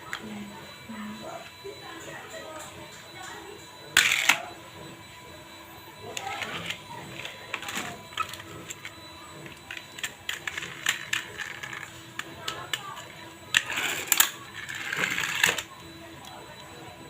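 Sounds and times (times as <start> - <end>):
toy cars clicking and clattering: 4.0 - 4.4, 6.2 - 16.4.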